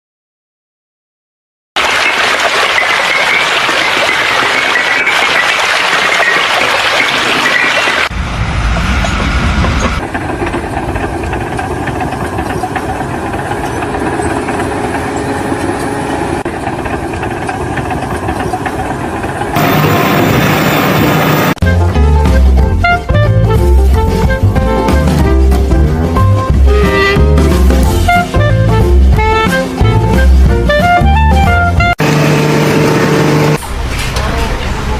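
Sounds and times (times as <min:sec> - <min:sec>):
machinery humming: 0:08.0 - 0:30.8, 0:32.0 - 0:34.9
engine running: 0:08.1 - 0:34.9
machinery hissing: 0:19.6 - 0:21.6.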